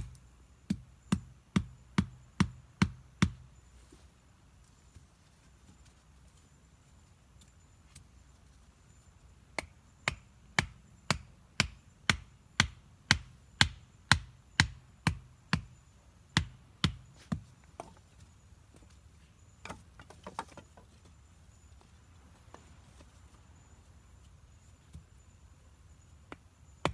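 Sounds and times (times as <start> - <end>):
chopping wood: 0.0 - 3.5, 9.6 - 15.8, 16.4 - 18.0, 26.3 - 26.9.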